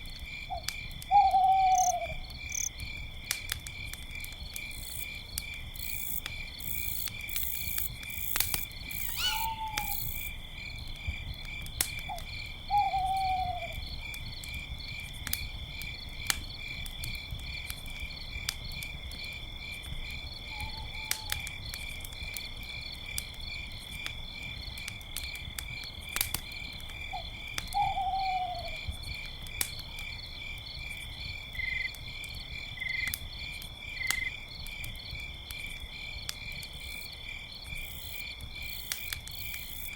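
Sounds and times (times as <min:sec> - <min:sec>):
campfire crackling: 0:00.0 - 0:39.9
crickets chirping: 0:00.1 - 0:39.9
owl hooting: 0:01.1 - 0:02.2, 0:09.0 - 0:10.2, 0:12.7 - 0:13.7, 0:27.8 - 0:28.8.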